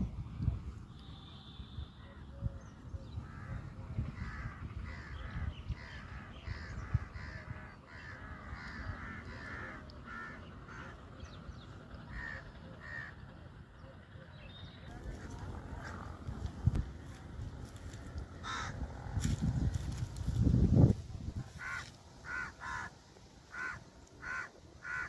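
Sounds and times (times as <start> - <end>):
birds calling: 2.0 - 25.0.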